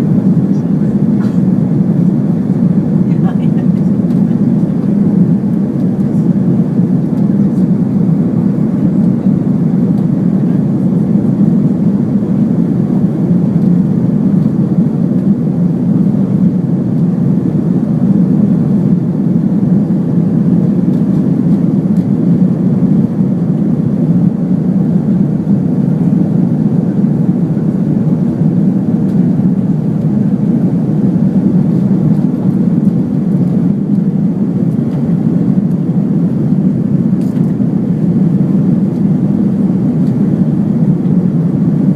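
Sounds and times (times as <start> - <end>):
jet engine rumble in cabin: 0.0 - 41.9.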